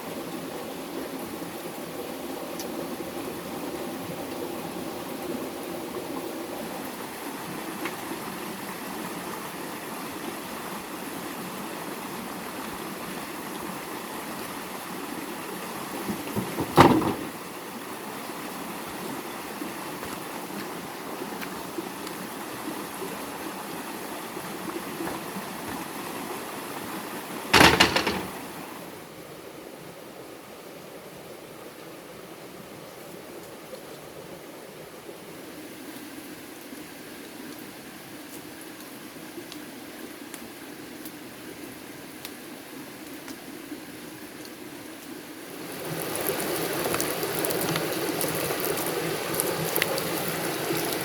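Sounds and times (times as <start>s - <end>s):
flowing water rushing: 0.0s - 51.0s
loud sharp knocks: 16.1s - 17.4s, 27.6s - 28.4s.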